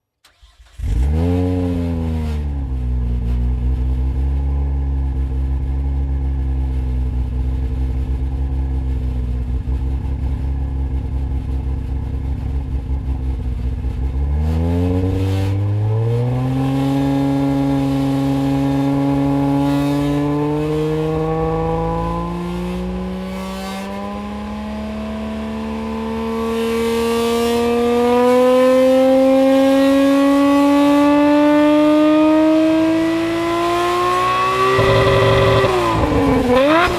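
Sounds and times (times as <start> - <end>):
turbocharged car engine revving: 0.3 - 2.8, 14.3 - 36.9.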